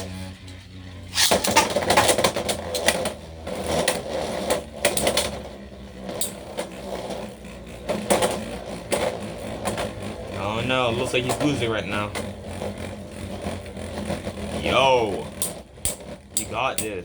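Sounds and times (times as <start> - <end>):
spinning tops whirring: 0.0 - 17.0
spinning tops clacking: 1.1 - 2.9.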